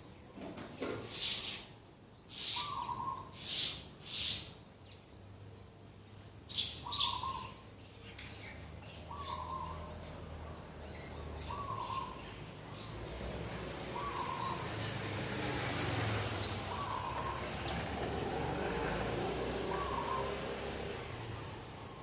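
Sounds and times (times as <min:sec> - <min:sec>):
birds giving harsh calls: 0:00.8 - 0:04.6, 0:06.5 - 0:07.7, 0:08.4 - 0:10.3, 0:11.3 - 0:22.0
doves cooing: 0:11.5 - 0:12.2, 0:13.0 - 0:22.0.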